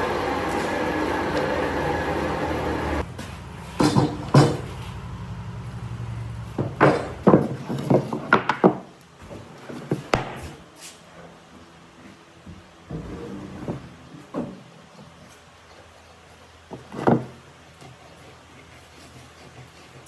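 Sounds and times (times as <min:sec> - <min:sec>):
low hum: 0:00.0 - 0:03.8.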